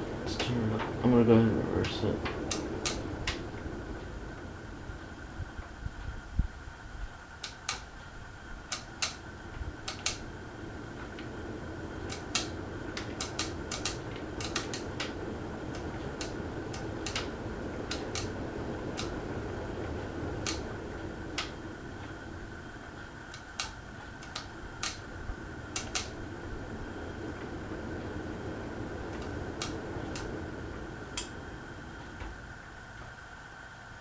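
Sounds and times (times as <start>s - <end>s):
ceiling fan motor hum and whine: 0.0s - 34.0s
sharp clicks: 2.2s - 3.4s, 7.4s - 7.9s, 8.7s - 9.2s, 9.9s - 10.2s, 12.1s - 17.3s, 20.4s - 20.6s, 23.3s - 25.0s, 25.8s - 26.1s.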